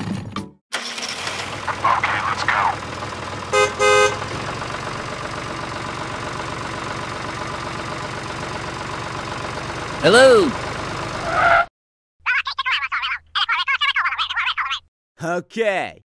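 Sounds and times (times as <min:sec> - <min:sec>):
engine running with fast chug: 0:00.8 - 0:11.3
vehicle horn toots: 0:03.4 - 0:04.4.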